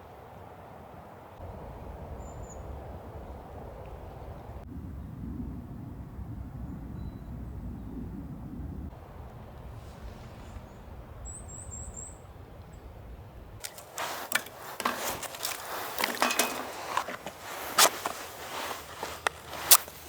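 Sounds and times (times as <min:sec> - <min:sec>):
low rumble: 0:01.4 - 0:13.6
campfire crackling and popping: 0:13.6 - 0:20.0.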